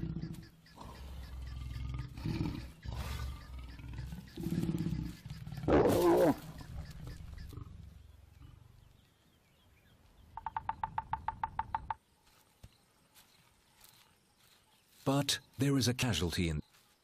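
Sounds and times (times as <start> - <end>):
lions growling and snarling: 0.0 - 9.0.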